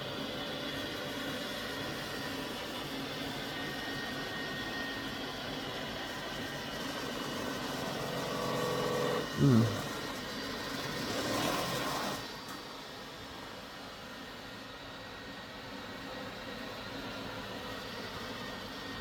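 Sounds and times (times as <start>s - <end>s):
robot vacuum motor whir: 3.4s - 12.5s.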